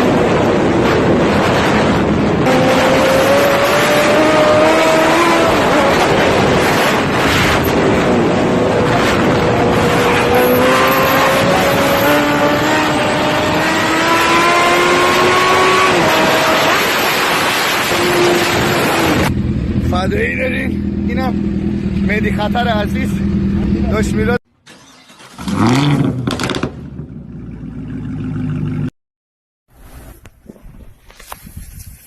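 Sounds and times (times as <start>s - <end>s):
car engine accelerating: 0.0s - 24.4s
wind and road noise: 0.0s - 28.9s, 29.7s - 32.0s.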